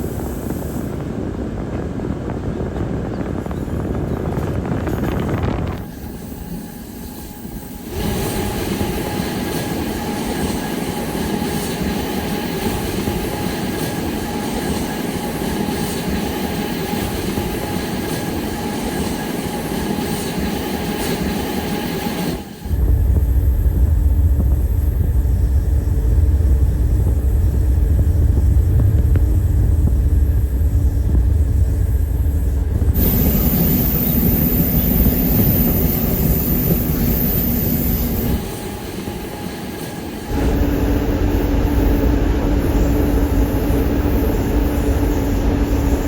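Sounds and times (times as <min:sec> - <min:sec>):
train rolling on rails: 0:00.0 - 0:46.0
heavy deep rumble: 0:22.7 - 0:38.4, 0:40.3 - 0:46.0.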